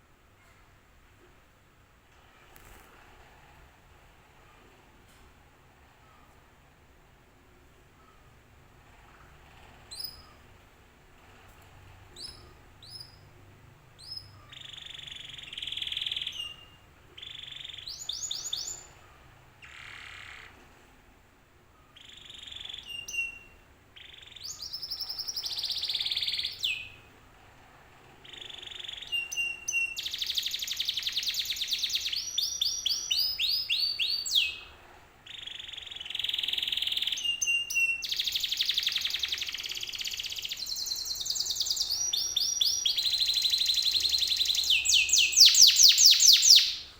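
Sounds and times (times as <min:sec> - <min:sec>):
canary singing: 0:09.6 - 0:10.6, 0:11.2 - 0:20.6, 0:21.9 - 0:27.2, 0:28.2 - 0:46.9.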